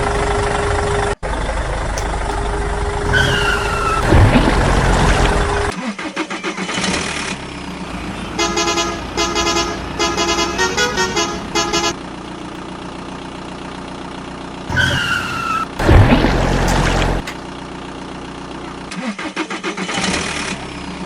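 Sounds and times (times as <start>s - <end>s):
low vehicle hum: 0.0s - 5.8s, 6.8s - 19.0s
engine noise burst: 0.0s - 13.9s, 14.6s - 21.0s
vehicle horn playing tune: 8.4s - 12.1s.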